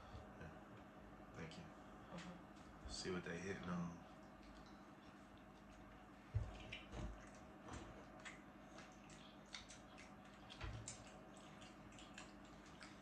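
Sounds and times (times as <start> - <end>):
low steady hum: 0.0 - 13.0
wet chewing and mouth smacks: 4.2 - 13.0.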